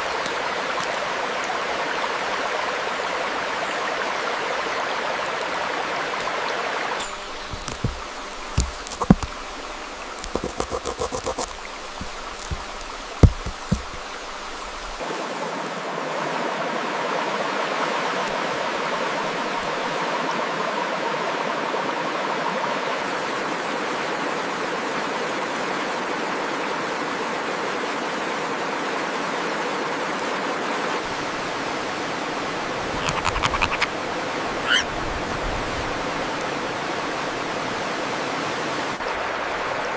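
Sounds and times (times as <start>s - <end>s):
running water rushing: 0.0s - 39.9s
sharp clicks and taps: 7.5s - 9.4s, 10.2s - 15.0s, 33.0s - 33.9s.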